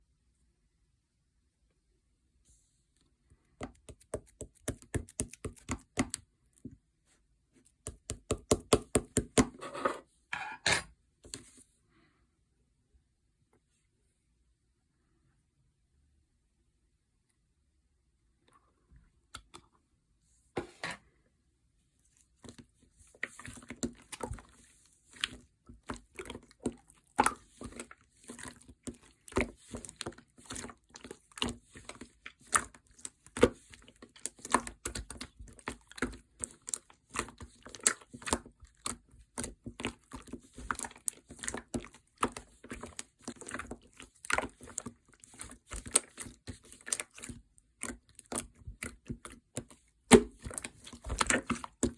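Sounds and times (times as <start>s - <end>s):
slime squished by hand: 3.6s - 6.3s, 22.2s - 51.9s.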